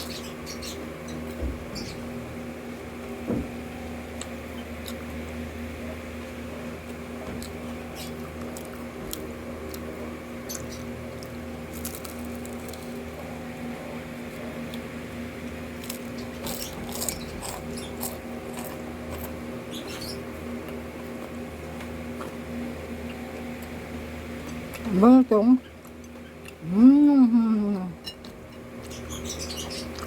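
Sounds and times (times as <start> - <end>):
steady low hum: 0.0 - 30.0
close-up chewing: 15.7 - 19.4.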